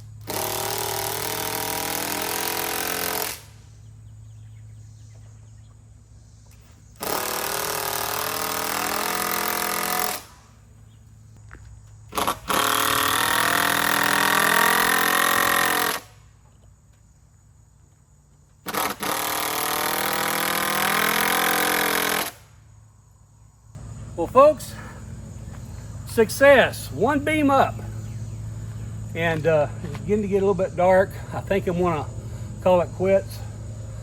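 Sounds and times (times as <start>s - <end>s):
steady low hum: 0.0s - 19.2s, 21.9s - 34.0s
power screwdriver driving screws: 0.2s - 3.4s, 12.2s - 16.1s, 18.7s - 22.4s.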